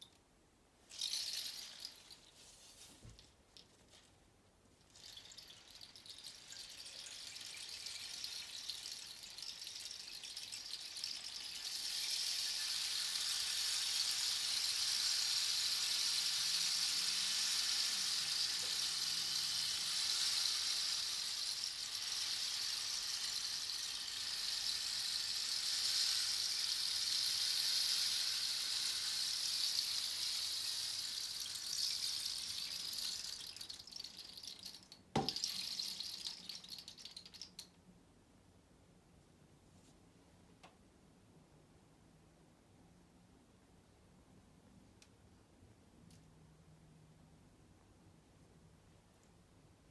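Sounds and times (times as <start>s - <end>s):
rain stick trickling: 0.9s - 2.4s, 4.9s - 37.7s.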